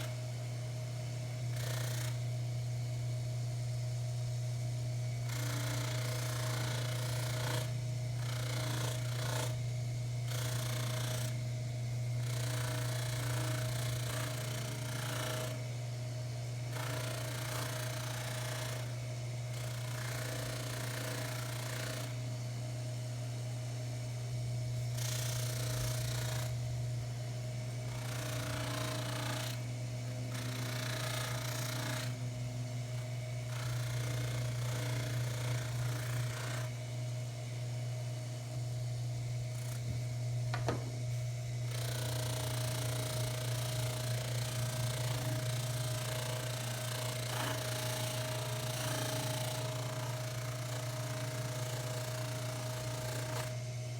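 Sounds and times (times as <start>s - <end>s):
lathe humming: 27.6s - 36.8s, 40.6s - 53.6s.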